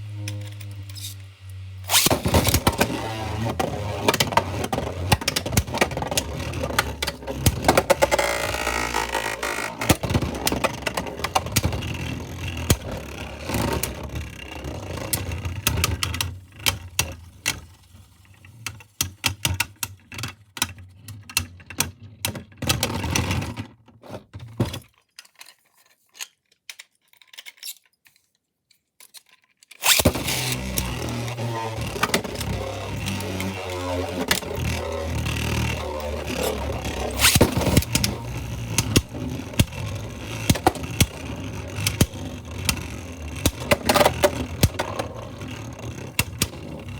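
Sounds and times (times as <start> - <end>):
spinning tops clashing and scraping: 0.1 - 16.0, 29.8 - 46.9.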